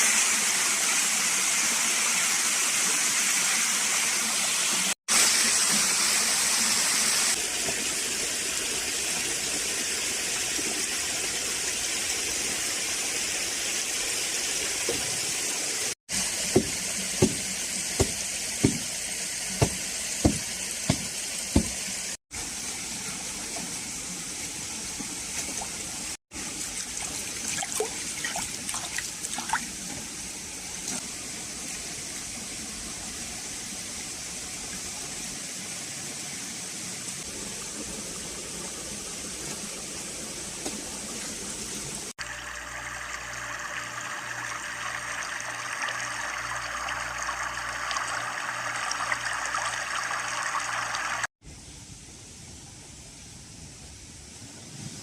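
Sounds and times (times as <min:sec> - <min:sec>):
water hiss: 0:00.0 - 0:27.9
spring water running and splashing: 0:00.0 - 0:51.3.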